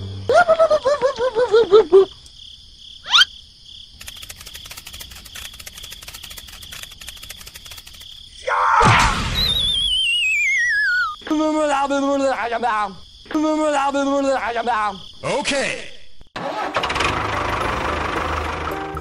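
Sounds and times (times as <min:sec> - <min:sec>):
insect-like chirring with ticking: 0:00.0 - 0:08.6, 0:09.4 - 0:15.2
cartoon warbling voice: 0:03.1 - 0:03.3
falling wavering whistle: 0:09.3 - 0:11.2
rising whistle: 0:09.3 - 0:11.2.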